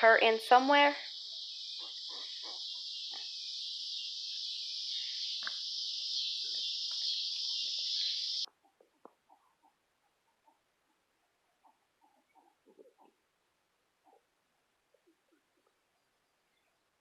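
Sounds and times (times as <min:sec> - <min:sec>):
buzzing chorus of insects: 0:00.0 - 0:08.5.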